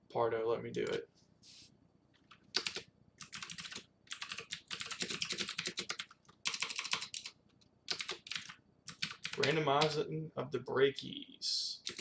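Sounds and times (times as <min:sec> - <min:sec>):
fast typing on keyboard: 0:02.3 - 0:09.9.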